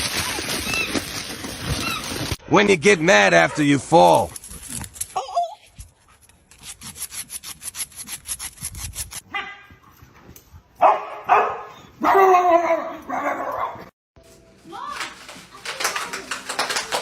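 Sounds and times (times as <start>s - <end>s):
rasping scratching strokes: 5.8s - 9.2s
dog barking: 9.3s - 9.7s, 10.8s - 13.9s.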